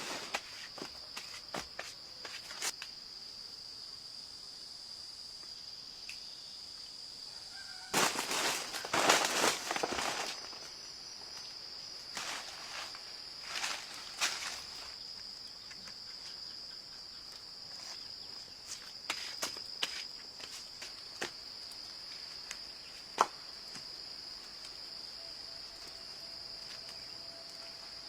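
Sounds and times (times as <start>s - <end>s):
rustling noise: 0.0s - 2.8s, 7.9s - 10.8s, 12.1s - 15.0s
insects trilling: 0.0s - 28.0s.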